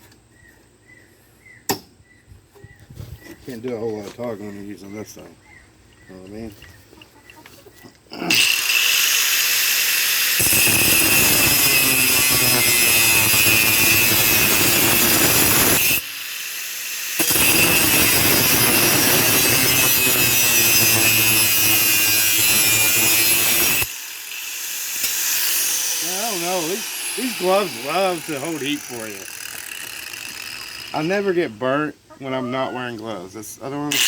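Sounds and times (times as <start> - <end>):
angle grinder cutting steel: 8.2 - 31.4.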